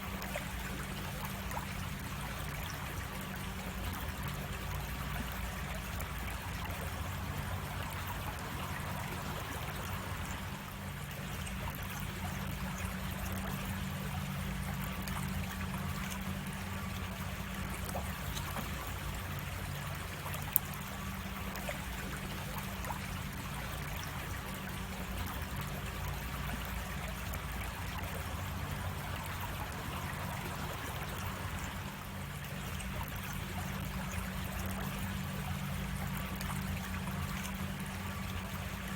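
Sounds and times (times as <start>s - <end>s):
creek water running over cascades: 0.0s - 38.9s.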